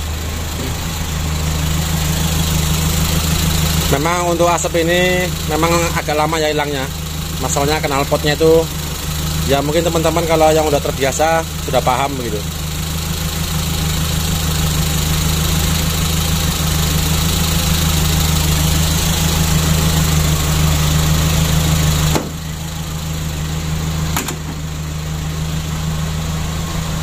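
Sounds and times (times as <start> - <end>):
car engine idling: 0.0 - 27.0
sharp click: 24.2 - 24.6.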